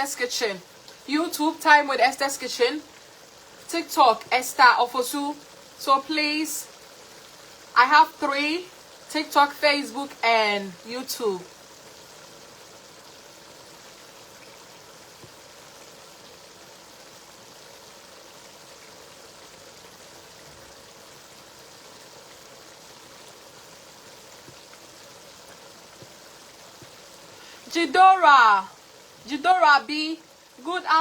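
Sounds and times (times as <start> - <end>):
stew simmering: 0.0 - 31.0
faint ticks: 0.8 - 1.1.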